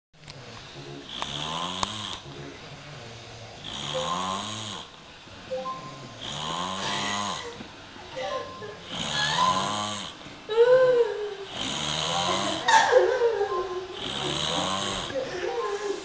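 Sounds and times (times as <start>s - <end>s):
quiet breaths: 0.2s - 12.7s, 13.9s - 16.0s
person snoring: 0.3s - 5.0s, 5.9s - 7.6s, 8.8s - 10.3s, 11.4s - 12.7s, 13.9s - 16.0s.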